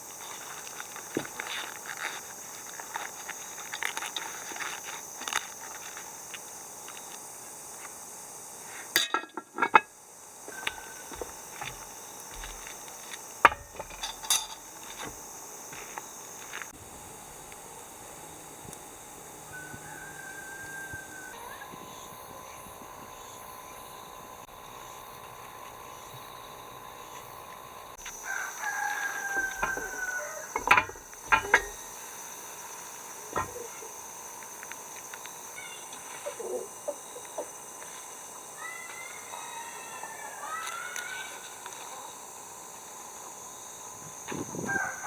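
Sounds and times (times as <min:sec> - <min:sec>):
insects chirring: 0:00.0 - 0:45.0
rooster crowing: 0:10.5 - 0:11.8, 0:19.4 - 0:21.7, 0:28.1 - 0:31.8, 0:38.6 - 0:41.3, 0:44.4 - 0:45.0
sharp clicks and knocks: 0:29.4 - 0:31.8.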